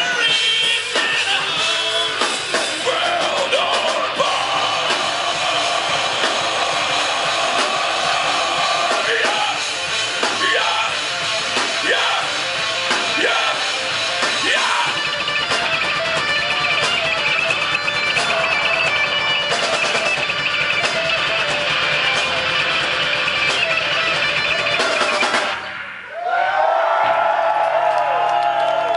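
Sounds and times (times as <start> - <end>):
live rock band playing: 0.0 - 26.1
electric guitar sliding notes: 0.9 - 26.2.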